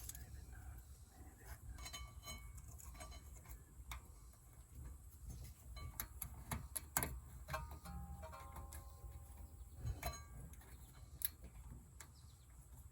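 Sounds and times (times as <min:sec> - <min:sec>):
metal tools clicking and clinking: 0:05.6 - 0:11.4.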